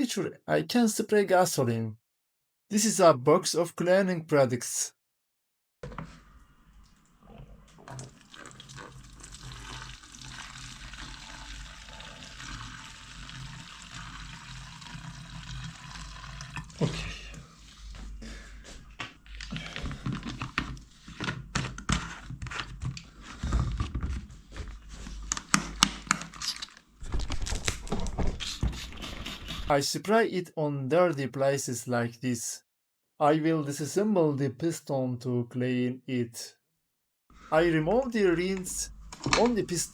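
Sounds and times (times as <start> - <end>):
gasoline pouring from canister: 7.8 - 17.0.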